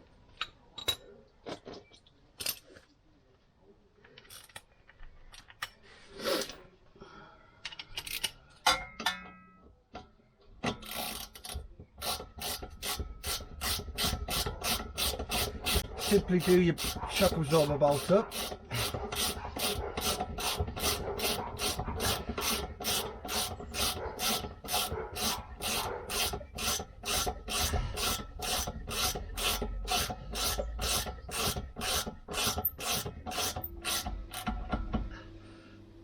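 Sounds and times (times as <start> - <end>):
ratchet spanner rasping: 10.7 - 34.8.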